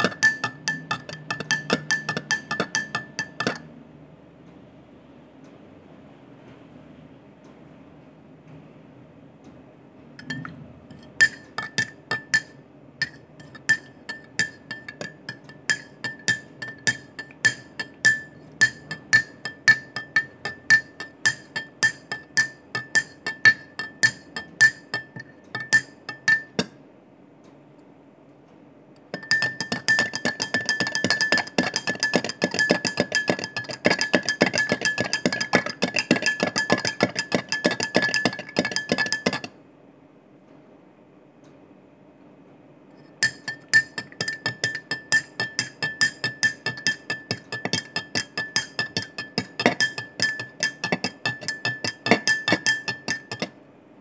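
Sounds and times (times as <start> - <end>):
teaspoon clinking in cup: 0.0 - 3.6, 10.2 - 26.8, 29.1 - 39.5, 43.2 - 53.6.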